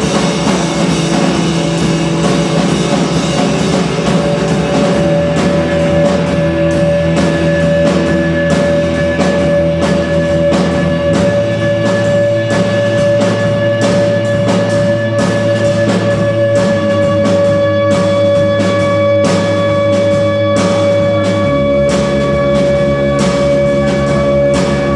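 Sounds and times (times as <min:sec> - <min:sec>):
bass line: 0:00.0 - 0:24.9
live rock band playing: 0:00.0 - 0:24.9.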